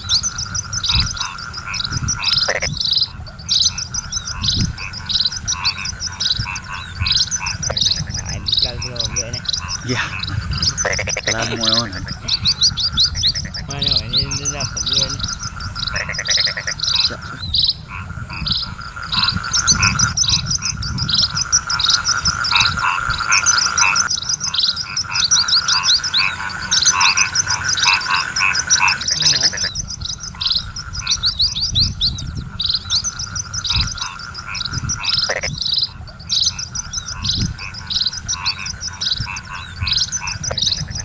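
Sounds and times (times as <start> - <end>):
frogs calling: 0.0 - 41.0
steady high drone: 5.1 - 13.3.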